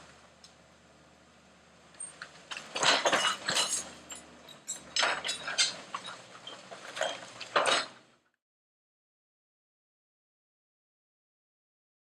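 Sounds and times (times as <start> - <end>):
demolition debris clattering: 1.9 - 8.1.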